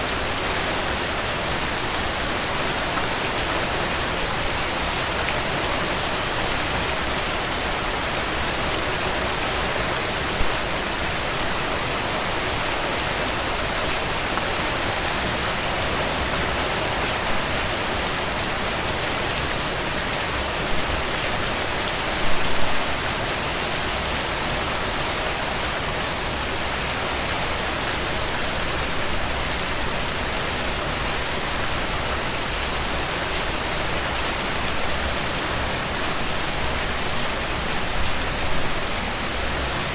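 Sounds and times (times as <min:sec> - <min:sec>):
rain falling on a tent: 0:00.0 - 0:39.9.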